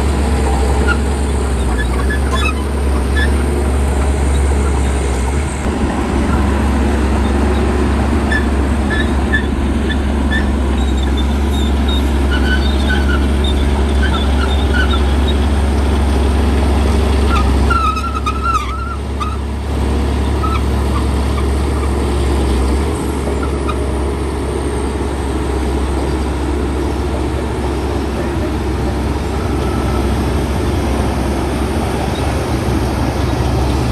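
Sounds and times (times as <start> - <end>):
heavy diesel machinery droning: 0.0 - 33.9
short high squeaks: 0.6 - 3.4, 17.3 - 19.4.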